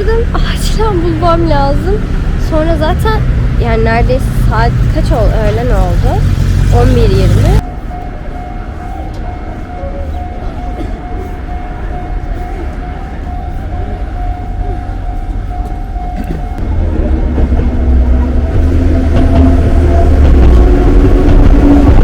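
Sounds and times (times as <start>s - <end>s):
railway warning bell ringing: 0.0s - 21.2s
train rumble: 0.0s - 22.0s
train motor tones: 12.2s - 22.0s.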